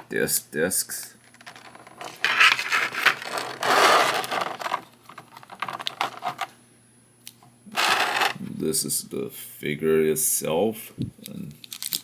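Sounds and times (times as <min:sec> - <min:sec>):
plastic crinkling and scraping: 0:01.2 - 0:06.5, 0:07.8 - 0:08.4.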